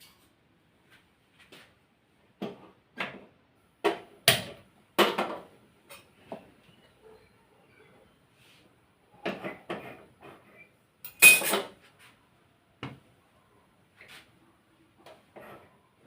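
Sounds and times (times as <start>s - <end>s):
metallic clank with ring: 11.1s - 11.6s
metal pots and utensils clattering: 11.1s - 11.8s.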